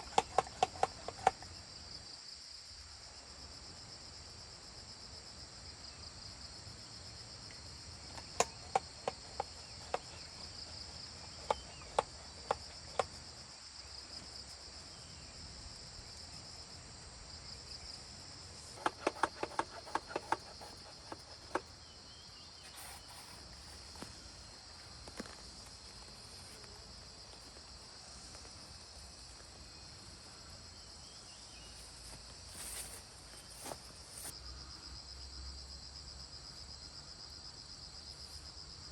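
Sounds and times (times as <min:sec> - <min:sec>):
high insect chirring: 0:00.0 - 0:01.7, 0:07.7 - 0:15.2, 0:17.5 - 0:34.4.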